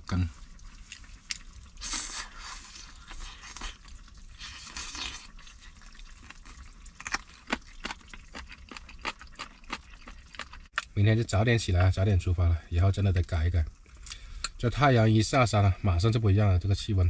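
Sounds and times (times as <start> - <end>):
chewing and crunching: 0.0 - 11.0, 13.1 - 14.6.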